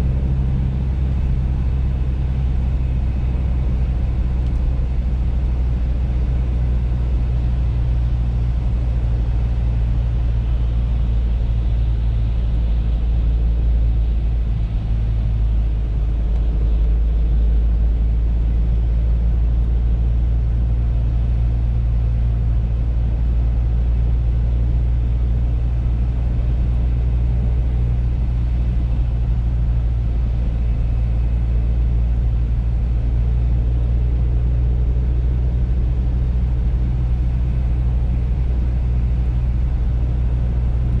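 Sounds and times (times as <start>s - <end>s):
car engine and road rumble: 0.0s - 41.0s.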